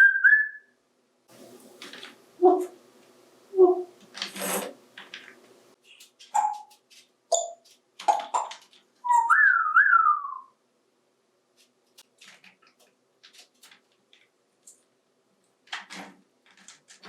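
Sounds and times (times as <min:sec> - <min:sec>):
parrot whistling: 0:00.0 - 0:00.7, 0:09.0 - 0:10.6
parrot squawks: 0:06.3 - 0:06.7, 0:08.4 - 0:10.5.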